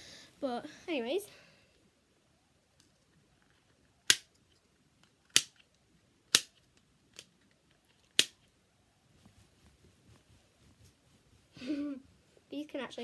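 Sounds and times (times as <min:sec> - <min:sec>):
plastic toy snapping: 0:04.0 - 0:04.4, 0:05.0 - 0:05.7, 0:06.3 - 0:07.3, 0:08.0 - 0:08.4.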